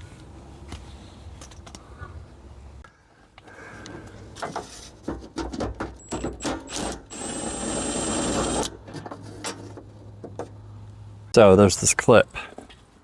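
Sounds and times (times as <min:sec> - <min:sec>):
small power tool whirring: 0:06.0 - 0:08.8.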